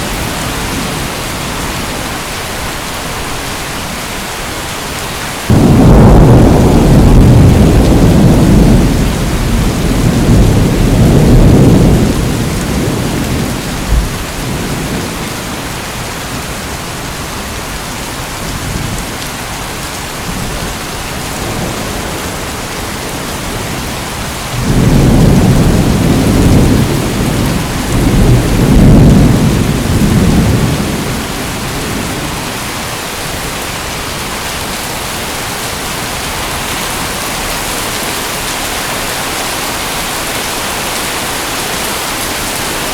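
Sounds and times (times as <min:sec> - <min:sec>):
steady rain: 0:00.0 - 0:42.9
low rolling thunder: 0:05.5 - 0:16.7, 0:20.2 - 0:32.8.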